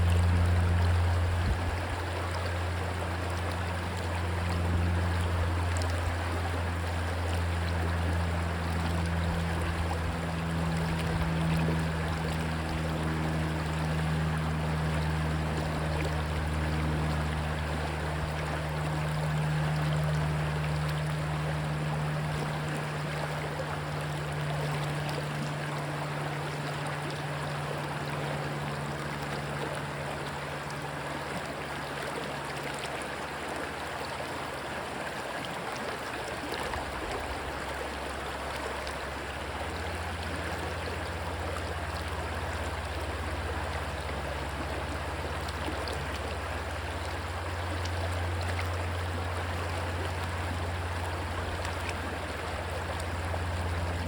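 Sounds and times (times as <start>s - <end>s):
low steady drone: 0.0s - 54.0s
rushing stream water: 0.0s - 54.0s.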